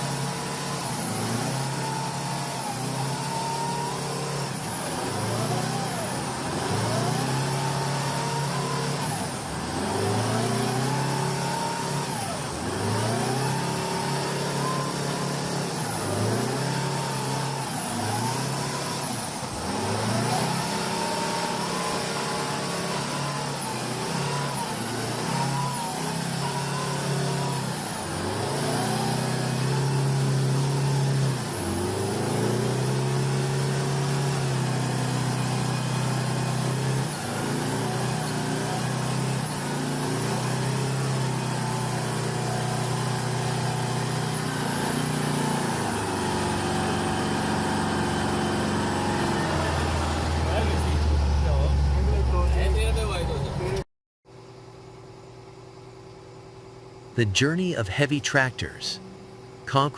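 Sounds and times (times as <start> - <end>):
truck engine revving: 0.0 - 53.8.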